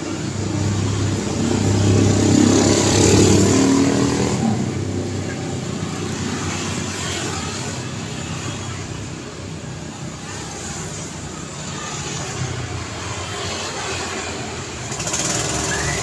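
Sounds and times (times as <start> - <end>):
vehicle passing close by: 0.0 - 8.9
road traffic: 0.0 - 16.0.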